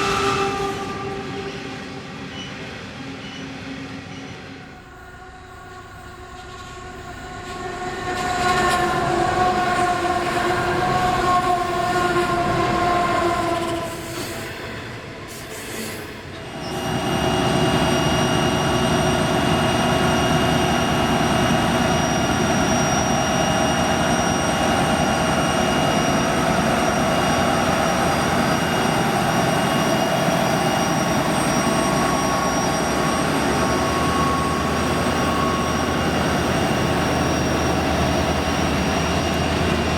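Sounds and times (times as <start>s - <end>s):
diesel locomotive horn blast: 0.0s - 2.5s, 4.6s - 17.4s
train passing with rumble: 0.0s - 39.9s.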